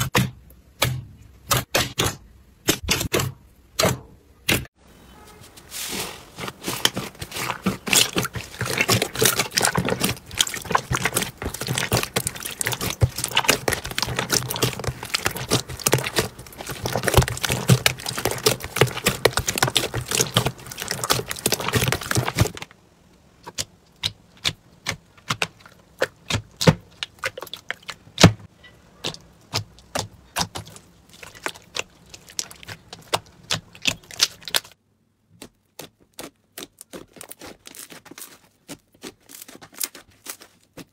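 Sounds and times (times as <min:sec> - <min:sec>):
slime crackling and popping: 0:06.6 - 0:22.7, 0:29.1 - 0:34.8.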